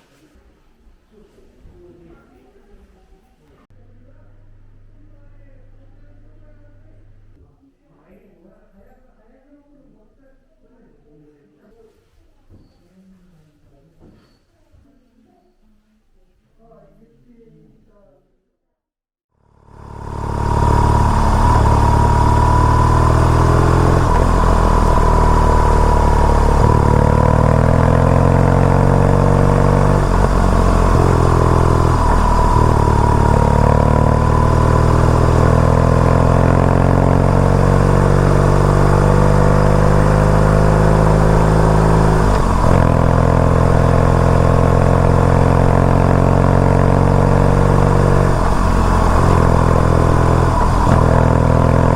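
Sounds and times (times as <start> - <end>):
motorcycle engine shifting gears: 19.4 - 51.9.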